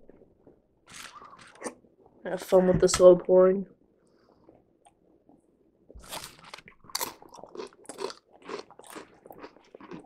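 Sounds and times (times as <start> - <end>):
crunching crackers: 0.9 - 1.8, 6.0 - 10.0.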